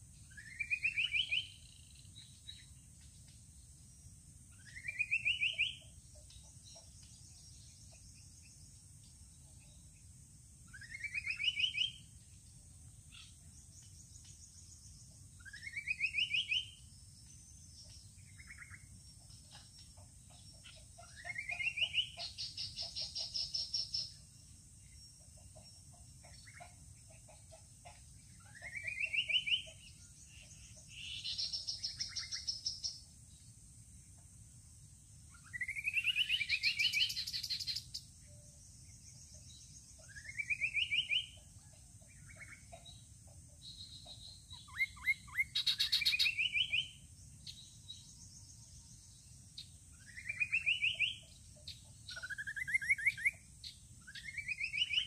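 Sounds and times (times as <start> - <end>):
bird whistling and trilling: 0.3 - 1.6, 35.4 - 37.8, 40.0 - 41.3, 44.5 - 47.0, 50.0 - 51.2, 52.1 - 53.4, 54.0 - 55.0.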